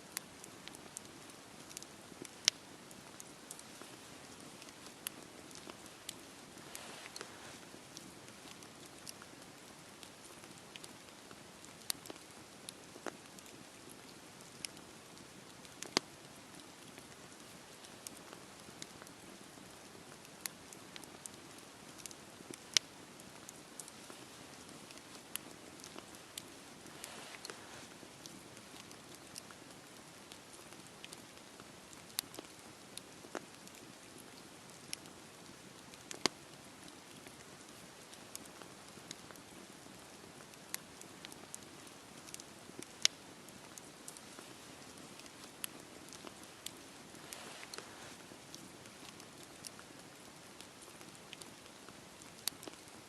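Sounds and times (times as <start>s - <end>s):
rain hiss: 0.0s - 53.0s
campfire pops and ticks: 0.1s - 53.0s
rain hissing: 0.3s - 11.4s, 23.0s - 29.2s, 43.6s - 49.4s.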